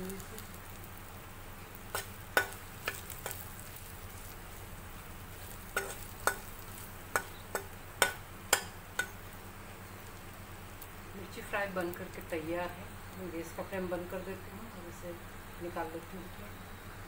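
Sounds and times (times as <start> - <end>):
chillies sizzling in oil: 0.0 - 17.0
spatula knocking on a pan: 2.0 - 3.4, 5.8 - 9.2.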